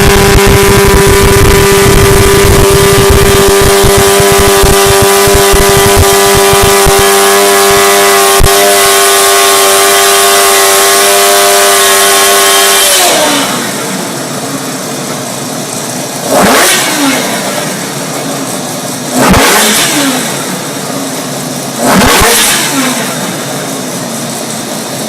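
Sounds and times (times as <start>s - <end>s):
engine high-pitched drone: 0.0s - 25.0s.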